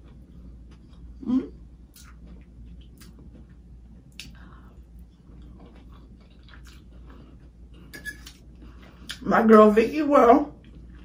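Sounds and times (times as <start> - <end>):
person chewing food: 0.0 - 9.2, 10.6 - 11.0
small mouth clicks: 1.9 - 2.2, 4.1 - 4.4.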